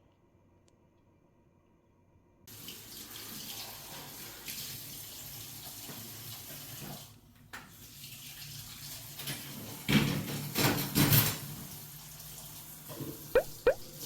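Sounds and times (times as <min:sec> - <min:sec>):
water running: 0:11.6 - 0:14.0.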